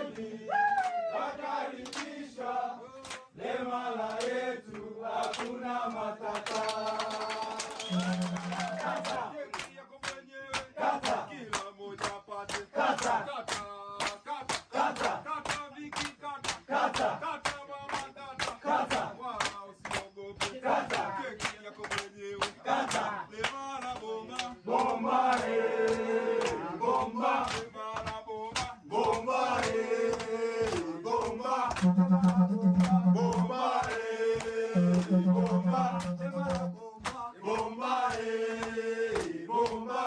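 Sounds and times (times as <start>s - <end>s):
group chanting and singing: 0.0s - 40.0s
fast percussive beat: 7.9s - 9.2s, 31.7s - 33.9s, 34.8s - 36.9s.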